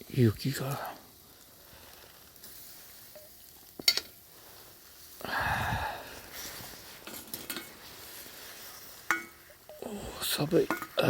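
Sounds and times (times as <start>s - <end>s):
pot scraping: 6.4s - 9.7s, 10.4s - 11.0s
pot clacking: 9.0s - 9.6s, 10.6s - 11.0s.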